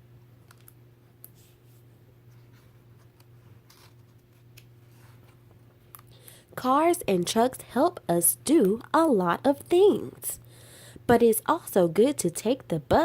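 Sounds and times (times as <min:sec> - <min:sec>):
steady low hum: 0:00.0 - 0:13.0
paper pages rustling and turning: 0:01.4 - 0:05.4.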